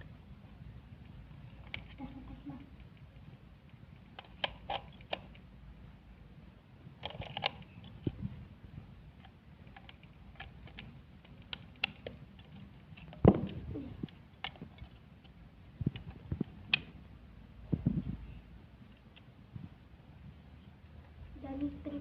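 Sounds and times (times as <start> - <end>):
handling clicks and taps: 9.2 - 17.0.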